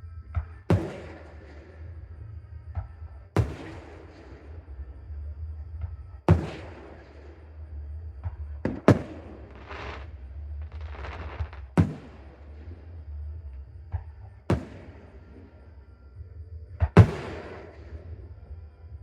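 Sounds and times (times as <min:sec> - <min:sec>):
sharp firework bangs: 0:00.7 - 0:01.5, 0:03.4 - 0:04.3, 0:06.3 - 0:07.0, 0:08.6 - 0:10.1, 0:10.8 - 0:12.3, 0:14.5 - 0:15.0, 0:16.9 - 0:17.8
firework booms with rumble: 0:00.7 - 0:01.9, 0:03.4 - 0:04.6, 0:06.3 - 0:07.4, 0:08.2 - 0:13.0, 0:13.8 - 0:15.6, 0:16.8 - 0:18.2.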